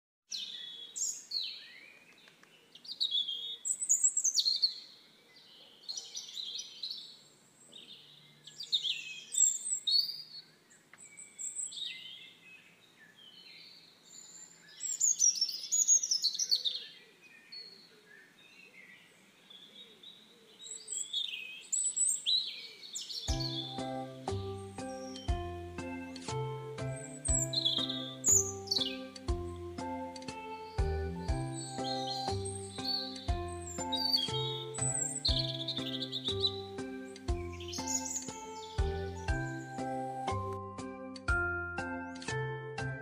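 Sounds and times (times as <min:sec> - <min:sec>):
small birds chirping and singing: 0:00.3 - 0:43.0.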